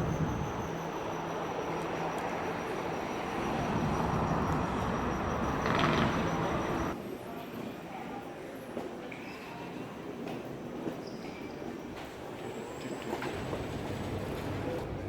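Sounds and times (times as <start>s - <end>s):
vehicle running rumble: 2.9s - 7.0s.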